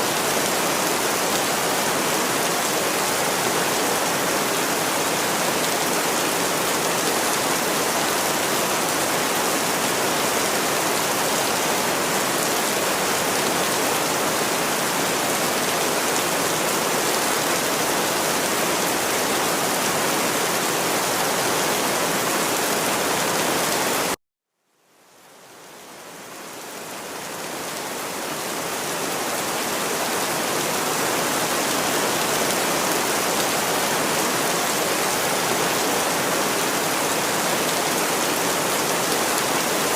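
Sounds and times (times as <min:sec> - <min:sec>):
heavy rain: 0:00.0 - 0:24.2, 0:25.0 - 0:39.9.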